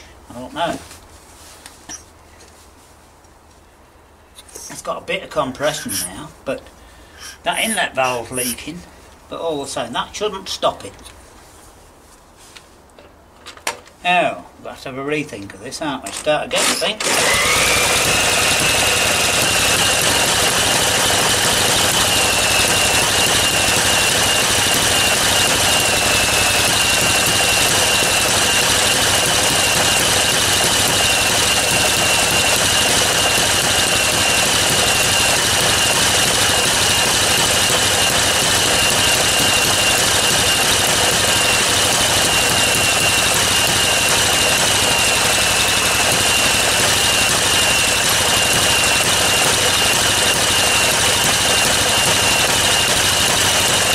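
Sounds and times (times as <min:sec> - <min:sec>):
engine mechanical clatter: 0:16.1 - 0:53.9.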